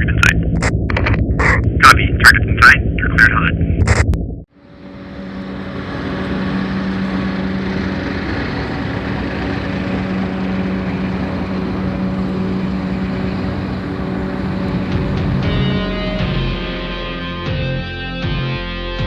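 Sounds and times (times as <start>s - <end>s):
aircraft engine drone: 4.5s - 17.4s.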